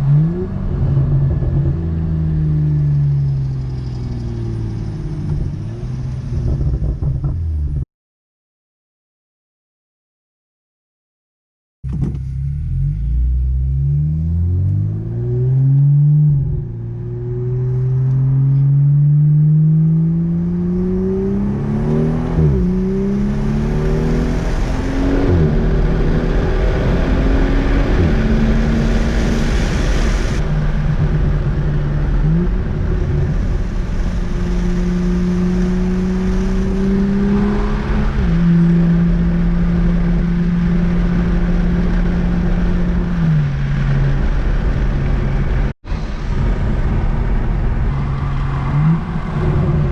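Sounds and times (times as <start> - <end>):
car engine accelerating through gears: 11.9 - 49.9.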